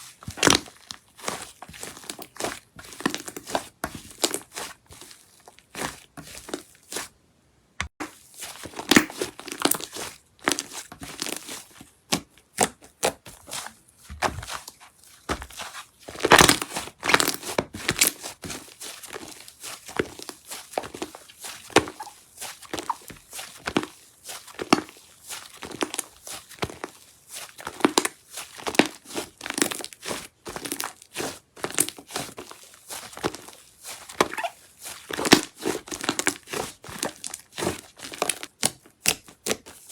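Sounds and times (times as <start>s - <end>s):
slime squished by hand: 8.4s - 39.8s.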